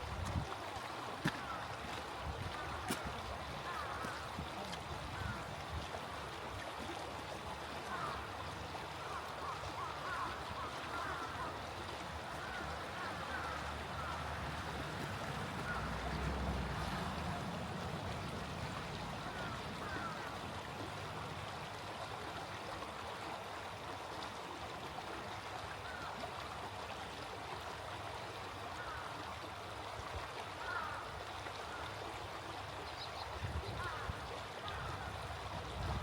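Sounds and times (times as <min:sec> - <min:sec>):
stream babbling: 0:00.0 - 0:36.0
faint bird calls: 0:15.6 - 0:16.4.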